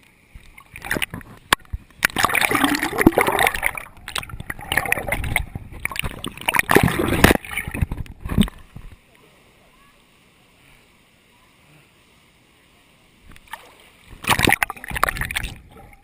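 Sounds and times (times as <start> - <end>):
water splashing and gurgling: 0.0 - 9.1, 13.3 - 16.0.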